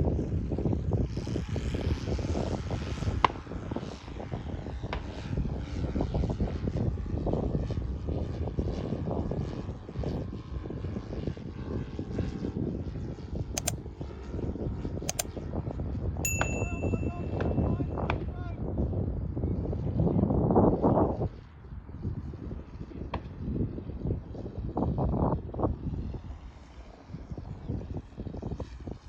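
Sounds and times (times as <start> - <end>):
sharp clicks: 15.1 - 15.3.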